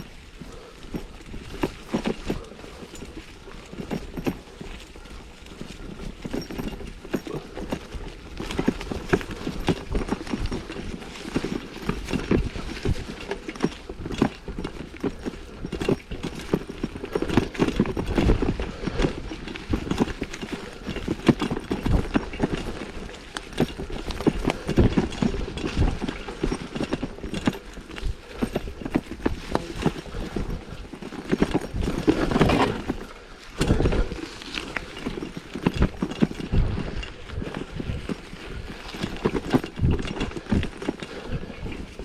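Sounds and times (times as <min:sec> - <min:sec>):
mountain bike rattling over dirt: 0:00.0 - 0:42.0.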